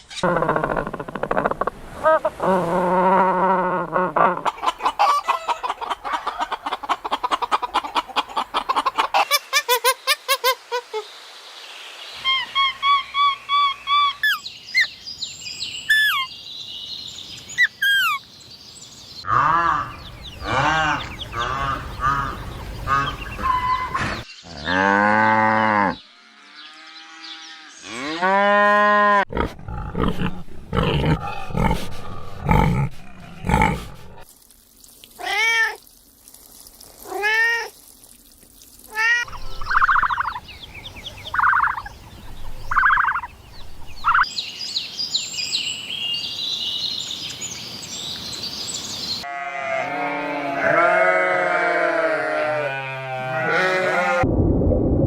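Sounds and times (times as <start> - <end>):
poultry calls: 4.4 - 9.4, 19.3 - 24.3, 39.3 - 44.3
cattle mooing: 19.3 - 26.0, 49.3 - 54.2.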